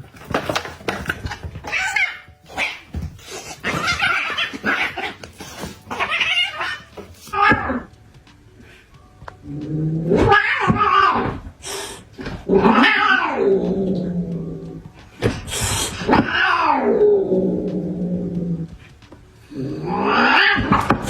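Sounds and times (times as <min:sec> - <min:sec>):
cat yowling: 0:01.6 - 0:03.0, 0:03.6 - 0:07.9, 0:10.0 - 0:11.4, 0:12.5 - 0:14.3, 0:15.9 - 0:18.2, 0:19.8 - 0:21.0.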